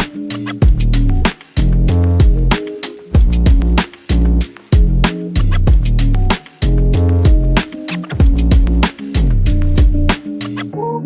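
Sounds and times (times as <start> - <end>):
drum hits: 0.0 - 4.1, 4.7 - 5.1, 5.7 - 10.2
plucked guitar: 0.0 - 11.0
sliding bass notes: 0.6 - 2.6, 3.2 - 7.6, 8.2 - 10.1.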